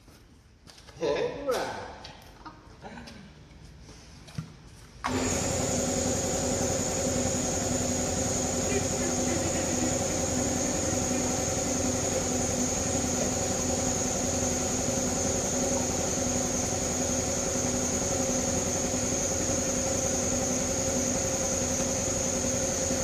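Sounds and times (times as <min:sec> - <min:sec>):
machine hum with high whine: 0:04.8 - 0:23.0.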